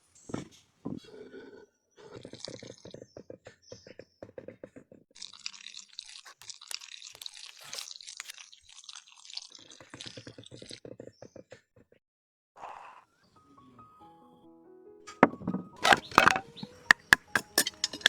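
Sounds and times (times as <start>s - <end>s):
hand scraping a hard surface: 15.8s - 18.0s.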